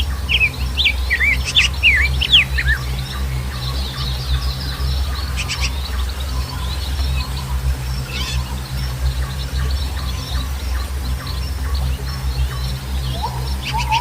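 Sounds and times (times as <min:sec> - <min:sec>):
birds chirping: 0:00.0 - 0:14.0
steady low rumble: 0:00.0 - 0:14.0.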